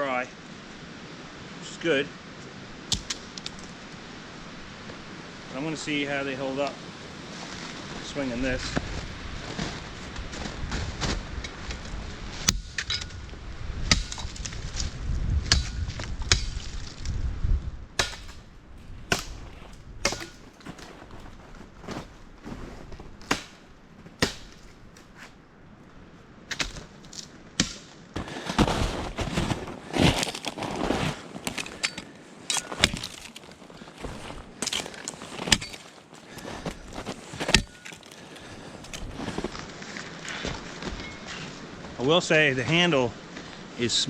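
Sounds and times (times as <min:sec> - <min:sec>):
shovel blade chopping branches: 0:12.4 - 0:13.2, 0:13.9 - 0:14.7, 0:15.5 - 0:17.0, 0:18.0 - 0:21.3, 0:23.2 - 0:25.4, 0:26.5 - 0:28.8, 0:30.0 - 0:33.7, 0:34.6 - 0:38.2.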